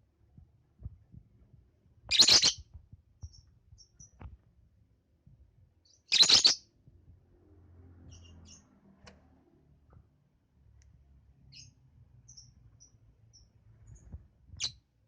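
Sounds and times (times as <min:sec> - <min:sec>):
lovebird chirping: 0:02.1 - 0:02.6, 0:05.8 - 0:06.7, 0:11.5 - 0:14.8.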